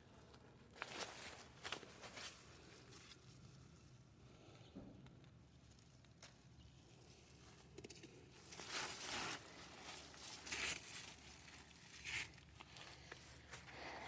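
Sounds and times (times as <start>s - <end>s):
dry vegetation rustling: 0.7s - 3.8s, 8.4s - 14.0s.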